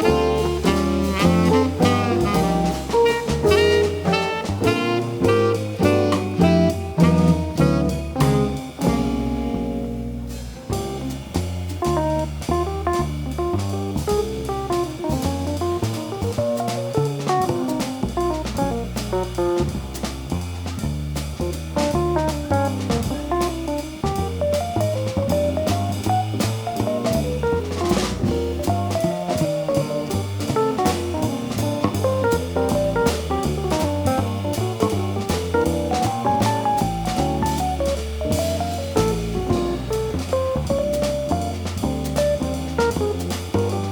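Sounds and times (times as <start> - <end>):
bass line: 0.0 - 43.9
drum kit cymbals: 0.0 - 43.9.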